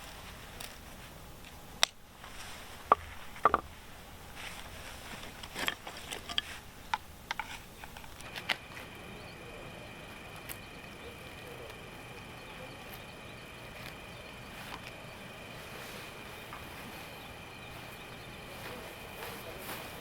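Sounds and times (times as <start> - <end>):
faint high tone: 8.3 - 20.0.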